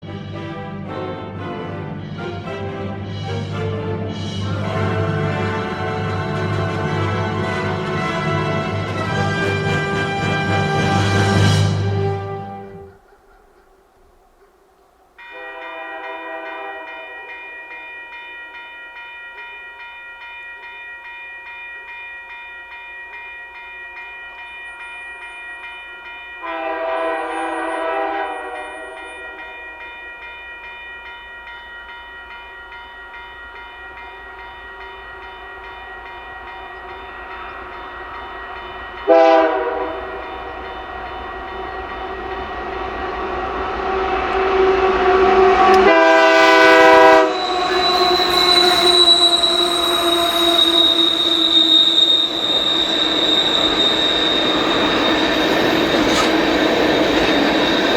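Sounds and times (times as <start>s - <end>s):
oncoming train noise: 0.0s - 57.9s
train horn blast: 0.5s - 13.0s, 15.3s - 17.4s, 26.4s - 29.6s, 39.1s - 40.5s, 41.6s - 52.0s
crossing bell ringing: 3.2s - 13.5s, 15.2s - 43.9s, 45.8s - 57.9s.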